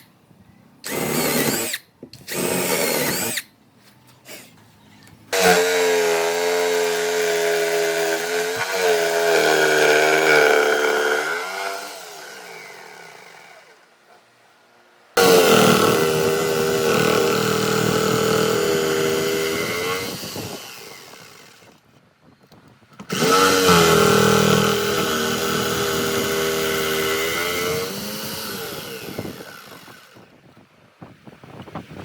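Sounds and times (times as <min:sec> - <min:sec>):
power tool motor running: 0:00.9 - 0:03.4, 0:05.3 - 0:13.8, 0:15.2 - 0:21.8, 0:23.0 - 0:30.3.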